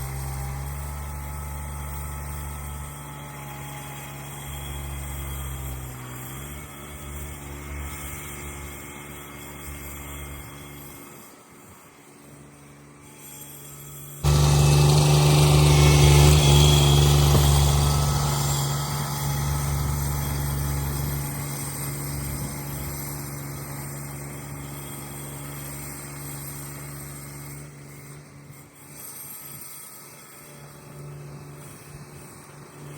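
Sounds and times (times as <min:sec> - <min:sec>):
garden tractor engine running: 0:00.0 - 0:10.4, 0:14.2 - 0:28.1.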